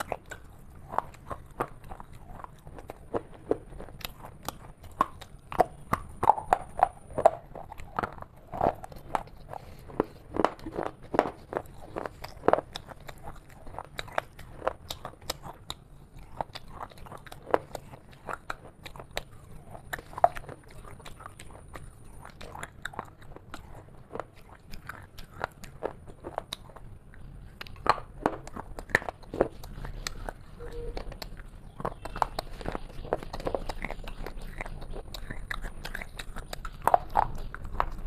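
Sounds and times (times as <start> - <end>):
crunchy chocolate chewing: 0.0 - 38.0.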